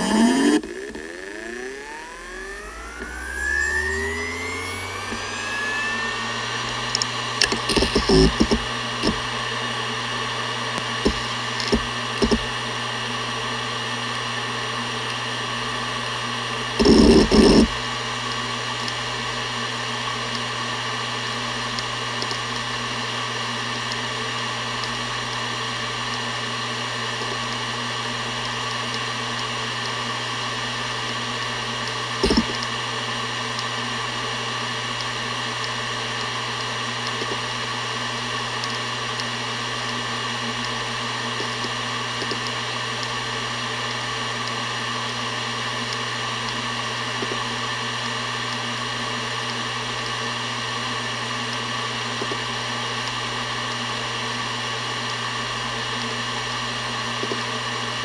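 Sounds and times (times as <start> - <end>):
hard drive humming and whining: 0.0 - 58.0
hard drive head seeking: 2.8 - 9.4, 11.0 - 12.6, 16.8 - 17.8, 32.2 - 32.6.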